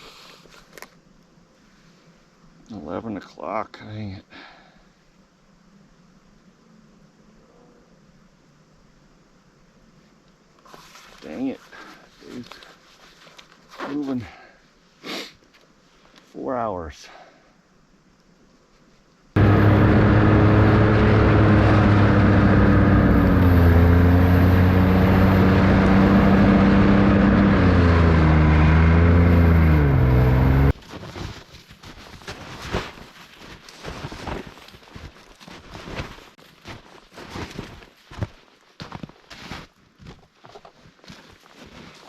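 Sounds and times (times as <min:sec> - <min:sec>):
small engine running: 0:19.4 - 0:30.7.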